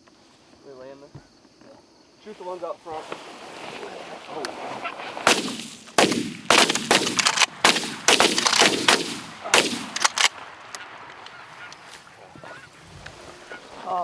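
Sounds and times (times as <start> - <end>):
shotgun shots: 5.2 - 11.8.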